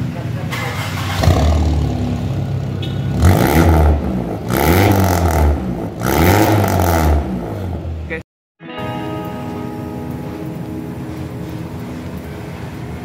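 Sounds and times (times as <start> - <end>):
engine revving: 0.5 - 7.9.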